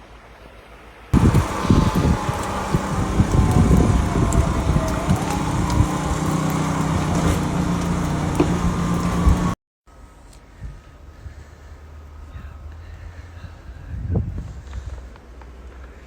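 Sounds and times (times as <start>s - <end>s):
wind buffeting microphone: 1.2s - 9.6s, 12.2s - 15.5s
vehicle engine hum: 1.2s - 10.2s, 10.8s - 16.0s.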